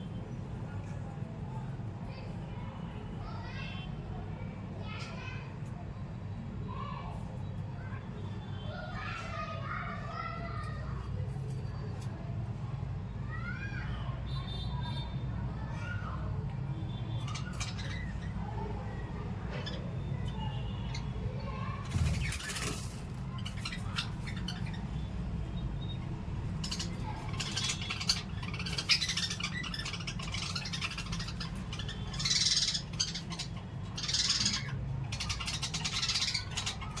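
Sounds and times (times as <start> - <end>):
parrots chirping and chattering: 17.1 - 37.0.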